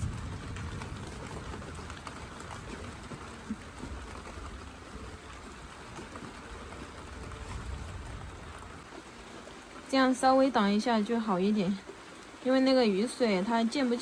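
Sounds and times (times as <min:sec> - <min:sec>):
heavy rain falling: 0:00.0 - 0:12.4.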